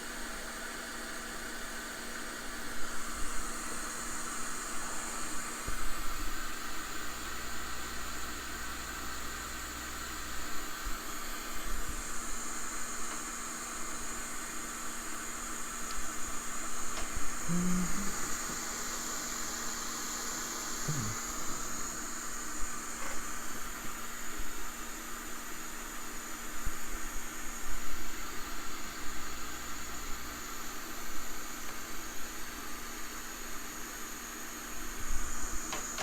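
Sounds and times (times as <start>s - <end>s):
hiss of blowing air: 10.6s - 23.9s.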